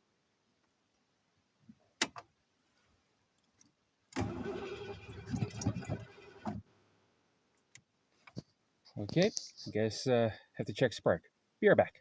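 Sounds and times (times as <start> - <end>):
engine cranking on starter: 4.2 - 6.6.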